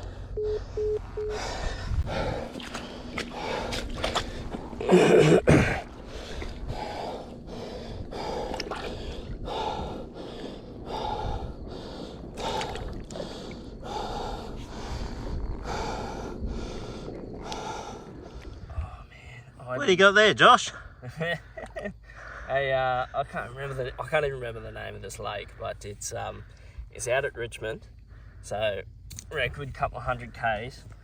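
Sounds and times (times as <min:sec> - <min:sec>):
man breathing heavily: 0:00.0 - 0:19.2, 0:22.0 - 0:22.6.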